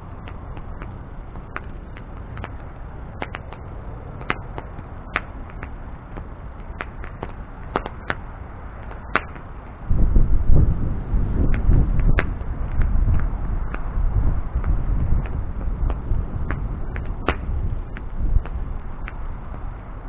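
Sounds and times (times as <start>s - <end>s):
bonfire flame rushing: 0.0s - 20.0s
wood crackling and popping: 0.0s - 20.0s
loud low rumble: 9.8s - 18.9s.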